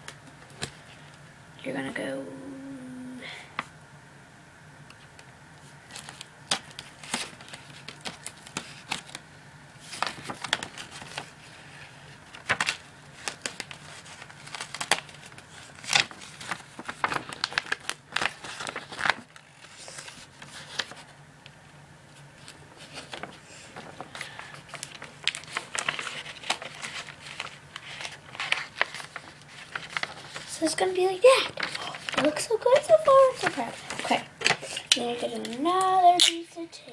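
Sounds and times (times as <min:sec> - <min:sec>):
paper crinkling and rustling: 0:05.6 - 0:09.2, 0:09.8 - 0:21.2, 0:22.1 - 0:36.4.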